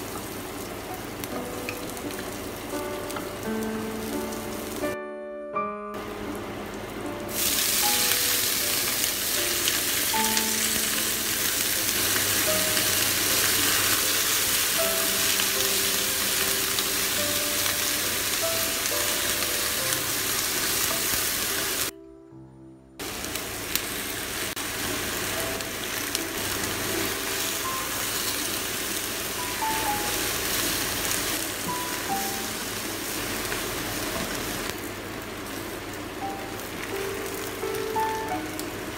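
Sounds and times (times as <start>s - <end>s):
hot oil sizzling: 0.0s - 5.0s, 6.0s - 21.9s, 23.0s - 38.9s
wooden spatula stir-frying: 0.0s - 5.0s, 6.7s - 21.9s, 23.0s - 38.9s.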